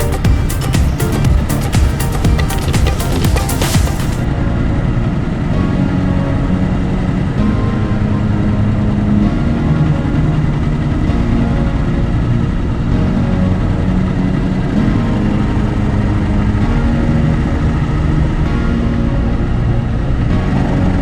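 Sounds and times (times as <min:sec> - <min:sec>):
motorcycle engine running: 0:00.0 - 0:04.3.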